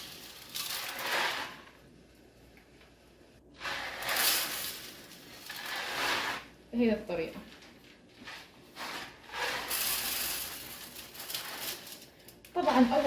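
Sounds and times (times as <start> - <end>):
salt pouring through funnel: 0.0 - 1.8, 3.6 - 6.5, 8.2 - 12.4.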